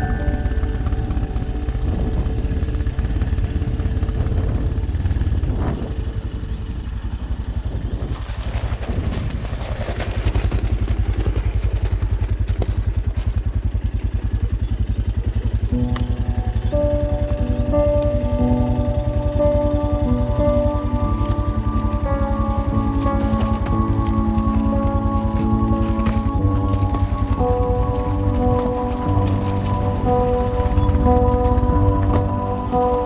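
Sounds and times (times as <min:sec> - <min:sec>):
background music: 0:00.0 - 0:06.5, 0:15.5 - 0:33.0
dirt bike engine running: 0:00.0 - 0:33.0
off-road rumble and clatter: 0:00.0 - 0:33.0.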